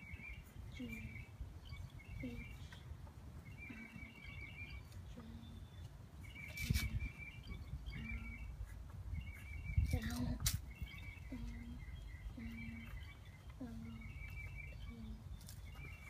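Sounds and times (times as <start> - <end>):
bird calling: 0.0 - 16.0
wind rumble on microphone: 6.5 - 12.5.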